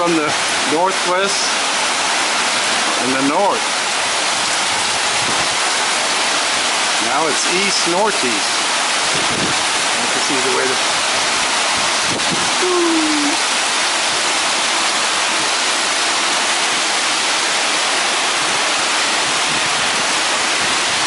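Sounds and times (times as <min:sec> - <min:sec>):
heavy rain pouring: 0:00.0 - 0:21.0
strong wind: 0:04.4 - 0:05.6, 0:09.0 - 0:10.1, 0:10.9 - 0:13.4, 0:18.3 - 0:21.0.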